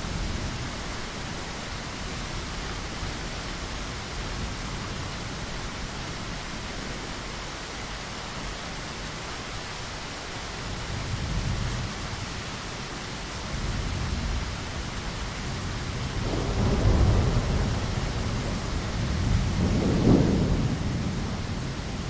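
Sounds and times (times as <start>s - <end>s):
steady rain: 0.0s - 22.0s
thunder rumbling: 15.6s - 22.0s.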